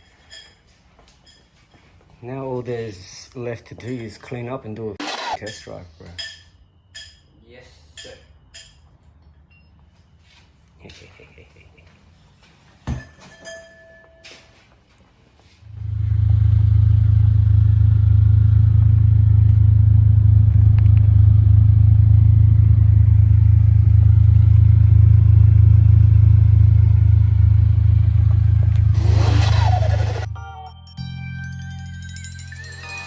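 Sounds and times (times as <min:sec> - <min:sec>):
car engine and road noise drone: 0:05.0 - 0:05.4, 0:15.7 - 0:30.4
rising whoosh: 0:27.8 - 0:30.4.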